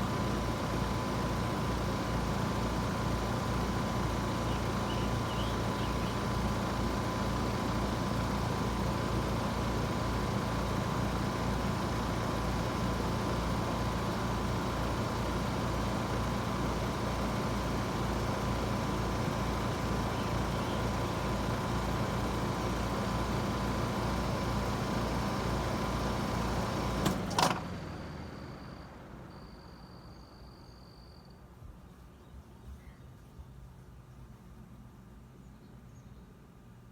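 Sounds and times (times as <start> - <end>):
heat pump humming: 0.0 - 29.4.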